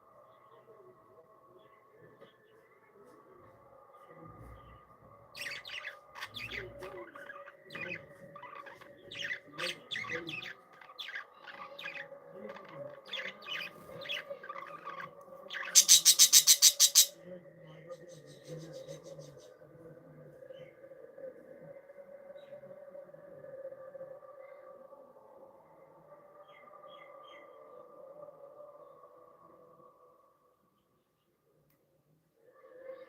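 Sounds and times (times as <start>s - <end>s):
budgerigars chirping: 13.1s - 17.1s.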